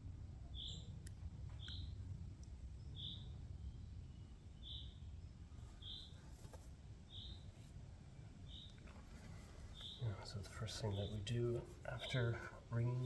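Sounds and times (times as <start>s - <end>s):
low background rumble: 0.0s - 13.0s
bird high-pitched call: 3.0s - 3.3s.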